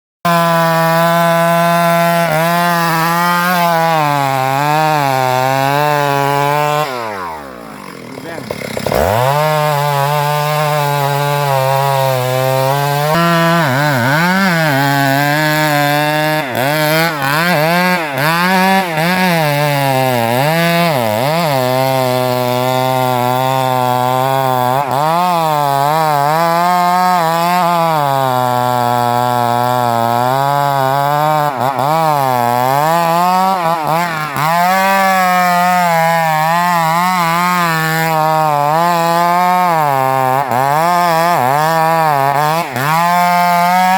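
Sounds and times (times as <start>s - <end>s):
chainsaw cutting wood: 0.2s - 43.9s.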